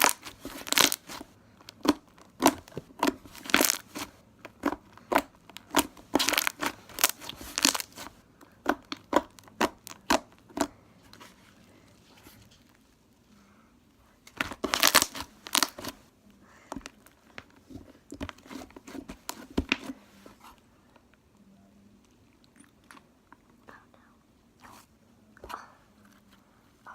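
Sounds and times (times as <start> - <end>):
sticky slime popping: 0.0 - 10.8, 14.3 - 16.0.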